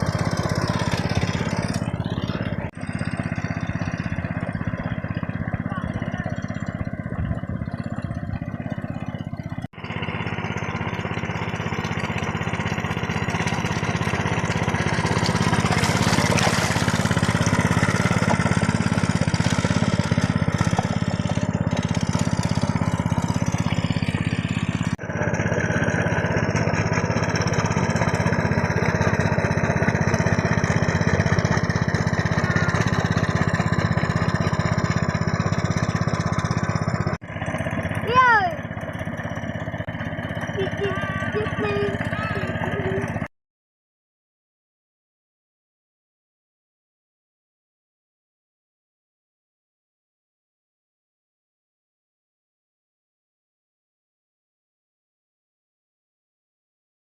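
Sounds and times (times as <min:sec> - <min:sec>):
hand tractor engine running: 0:00.0 - 0:43.3.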